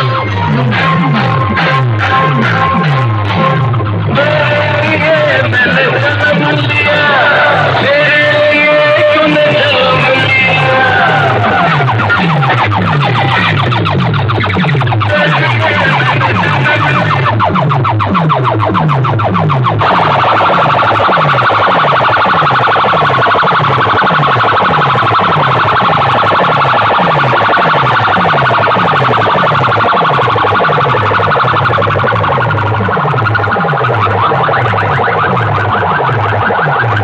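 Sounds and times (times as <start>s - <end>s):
heavy bass beat sliding down: 0.0s - 37.0s
siren-like electronic music: 0.0s - 37.0s.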